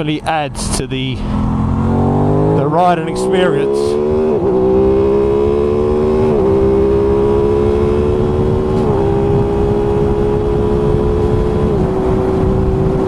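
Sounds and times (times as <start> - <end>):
wind rumble on microphone: 3.9 - 13.0.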